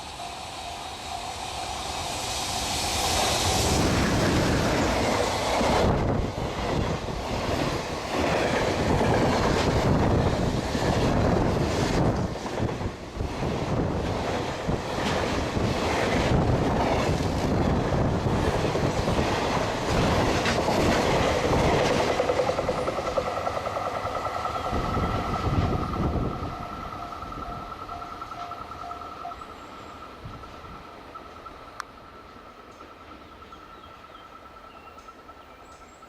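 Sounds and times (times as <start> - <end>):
steady high whine: 0.0 - 7.1, 21.4 - 33.5
train wheels clattering: 0.0 - 33.9
train rumble: 0.0 - 36.0.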